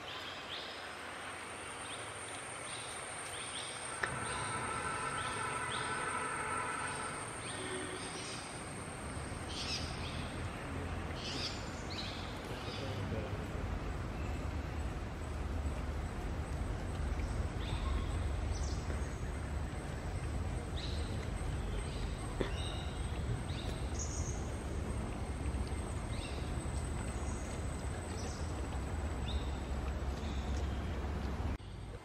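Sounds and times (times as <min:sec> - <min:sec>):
birds chirping: 0:02.8 - 0:15.8, 0:16.8 - 0:31.8
steady low rumble: 0:04.1 - 0:32.0.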